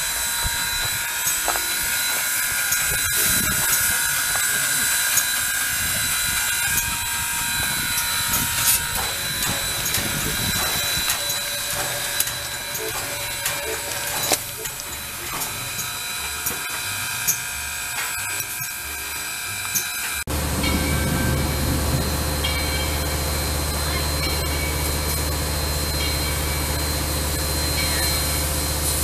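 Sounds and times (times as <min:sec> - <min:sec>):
low train rumble: 0:00.0 - 0:29.0
train wheel squeal: 0:00.0 - 0:29.0
clicks and clanks: 0:07.9 - 0:18.8.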